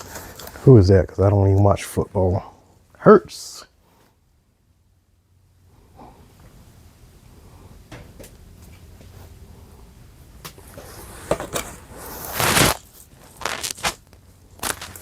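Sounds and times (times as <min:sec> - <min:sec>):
clothing and boxes rustling: 0:10.6 - 0:15.0.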